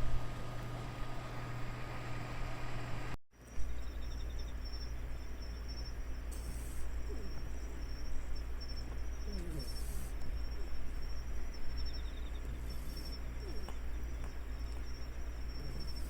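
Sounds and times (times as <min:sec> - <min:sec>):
constant low hum: 0:00.0 - 0:16.0
insects chirping: 0:03.4 - 0:16.0
bursts of hiss: 0:06.2 - 0:07.5.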